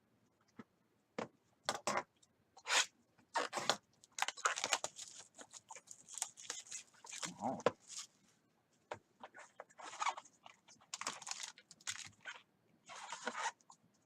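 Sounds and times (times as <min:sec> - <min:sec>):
cards and packaging rustling: 0:03.4 - 0:08.2, 0:09.3 - 0:13.6.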